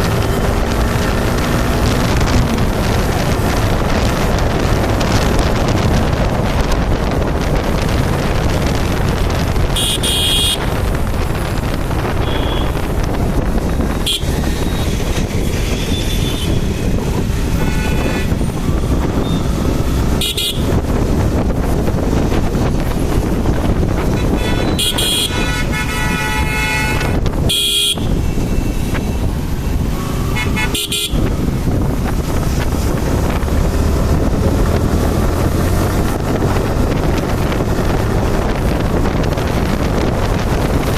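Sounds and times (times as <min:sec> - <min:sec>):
road traffic: 0:00.0 - 0:40.9
wind rushing over microphone: 0:00.0 - 0:40.9
vehicle horn honks: 0:09.8 - 0:10.7, 0:12.2 - 0:12.9, 0:14.0 - 0:14.8, 0:17.6 - 0:18.4, 0:20.2 - 0:20.7, 0:24.0 - 0:28.2, 0:30.2 - 0:31.3.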